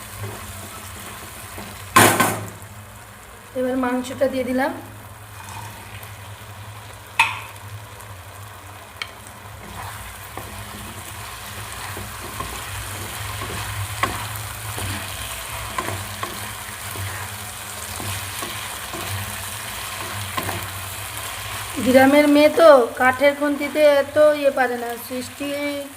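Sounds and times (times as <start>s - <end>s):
chicken sizzling in a pan: 0.0s - 25.9s
wooden spatula knocking a pan: 1.9s - 2.5s, 7.2s - 7.6s.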